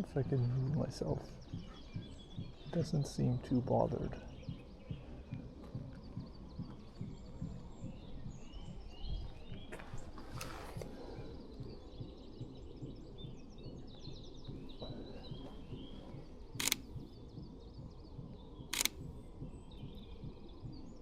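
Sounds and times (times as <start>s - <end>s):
songbirds twittering: 0.0s - 21.0s
camera shutter firing: 16.6s - 16.9s, 18.8s - 19.0s.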